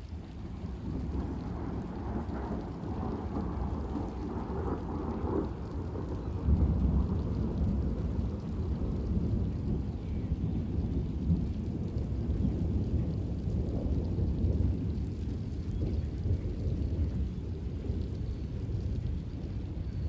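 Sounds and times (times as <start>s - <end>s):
low rumble of thunder: 0.0s - 20.0s
steady rain: 0.0s - 20.0s.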